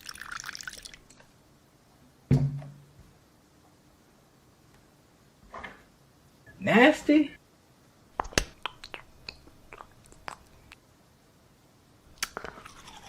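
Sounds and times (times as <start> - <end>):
close-miked eating crackles: 8.2 - 10.8, 12.1 - 13.0.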